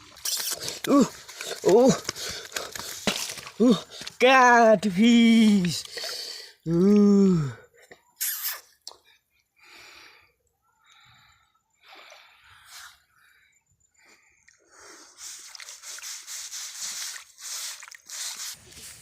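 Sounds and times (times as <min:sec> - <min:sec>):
mud and water squelching: 0:00.0 - 0:07.4, 0:14.4 - 0:19.0.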